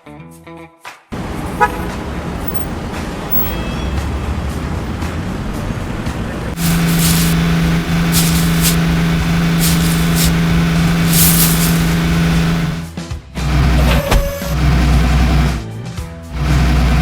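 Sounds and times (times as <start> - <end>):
droning vehicle tone: 1.2 - 15.6, 16.3 - 17.0
short air brake hisses: 6.6 - 12.8.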